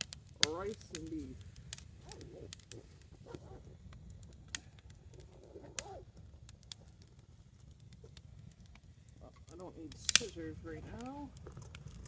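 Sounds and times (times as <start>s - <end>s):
campfire crackling: 0.0s - 12.0s
low background rumble: 0.0s - 12.0s.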